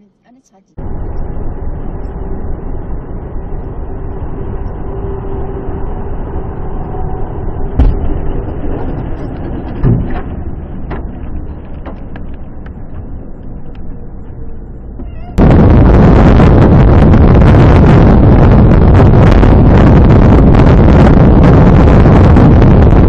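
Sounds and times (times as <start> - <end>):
car road and engine rumble: 0.8 - 23.0
loud thumps: 7.7 - 13.2.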